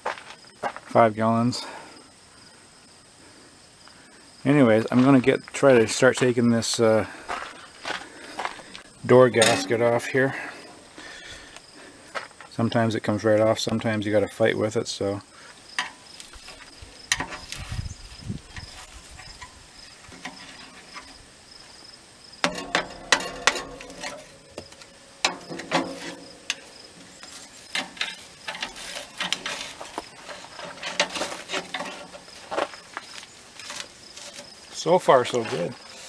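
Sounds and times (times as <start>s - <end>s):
high insect trill: 0.1s - 36.0s
gasket scraping and tearing: 22.4s - 32.8s.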